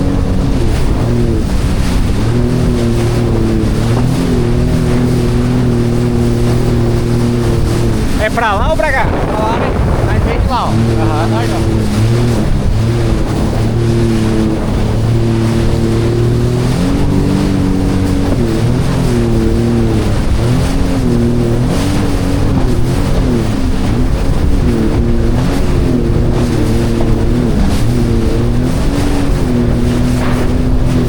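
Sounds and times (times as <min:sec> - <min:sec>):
jet ski engine running: 0:00.0 - 0:31.0
rush of wind and water: 0:00.0 - 0:31.0.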